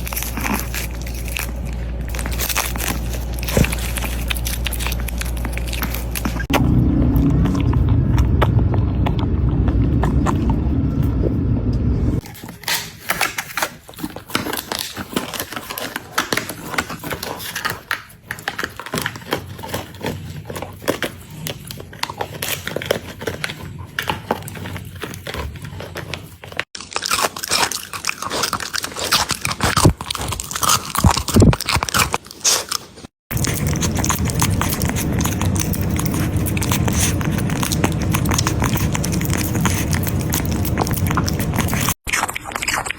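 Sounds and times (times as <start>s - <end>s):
dog crunching food: 0.0s - 11.0s, 12.2s - 42.9s
loud low rumble: 0.0s - 12.2s, 33.3s - 42.0s.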